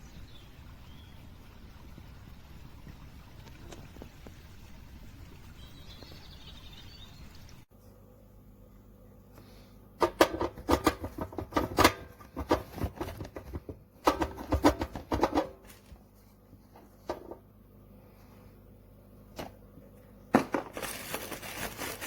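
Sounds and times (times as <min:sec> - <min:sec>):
clicks and knocks of objects handled: 0:10.0 - 0:16.0.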